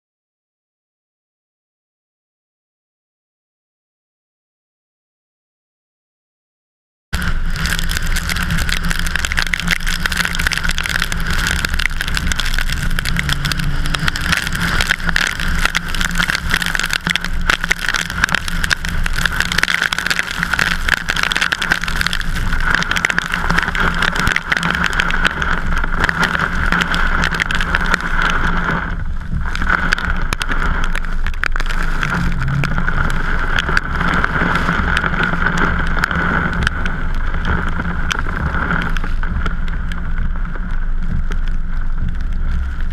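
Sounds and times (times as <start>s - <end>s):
vehicle driving rushing noise: 7.2s - 20.5s, 29.8s - 39.0s
constant hum: 7.2s - 42.9s
wind buffeting microphone: 7.2s - 42.9s.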